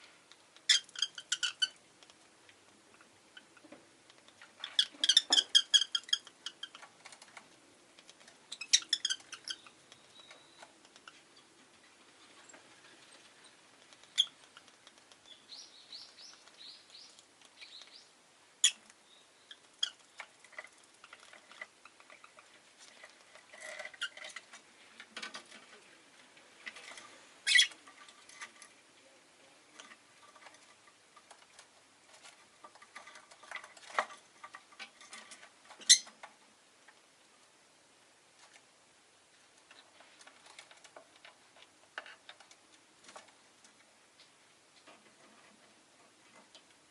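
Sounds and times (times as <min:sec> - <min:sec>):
lovebird chirping: 0:08.5 - 0:11.5, 0:13.0 - 0:20.2, 0:27.4 - 0:27.8, 0:35.8 - 0:36.1.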